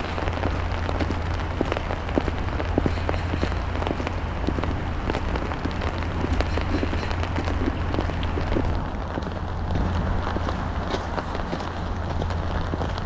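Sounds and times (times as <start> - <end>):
low steady rumble: 0.0 - 13.0
rain and snow pattering: 0.0 - 13.0.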